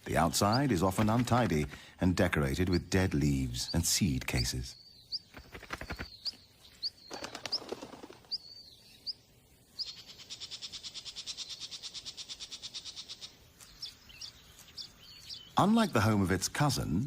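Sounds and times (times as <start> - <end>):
small birds chirping: 0.0 - 17.0
bird trill: 3.6 - 16.0.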